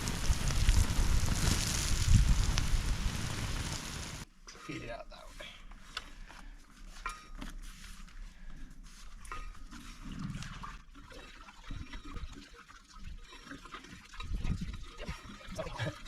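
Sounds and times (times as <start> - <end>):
water splashing and dripping: 10.0 - 16.0.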